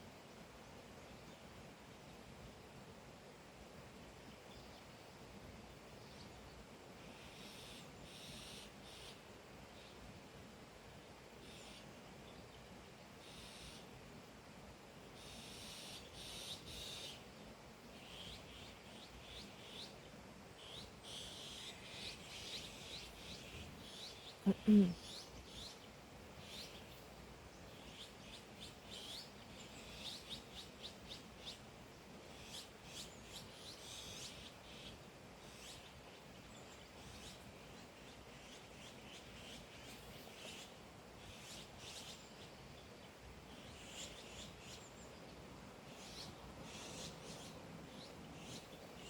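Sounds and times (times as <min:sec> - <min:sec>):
steady background hiss: 0:00.0 - 0:49.0
small birds chirping: 0:18.0 - 0:49.0.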